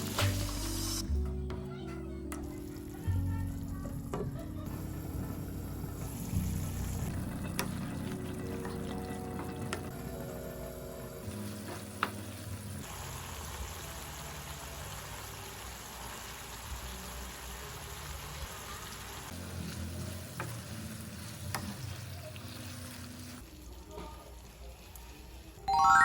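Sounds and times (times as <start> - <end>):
food sizzling in a pan: 0.0 - 1.0, 4.7 - 8.2, 9.4 - 26.0.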